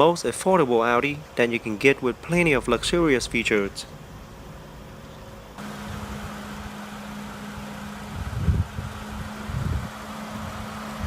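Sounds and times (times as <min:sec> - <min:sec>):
car engine idling: 0:02.2 - 0:11.0.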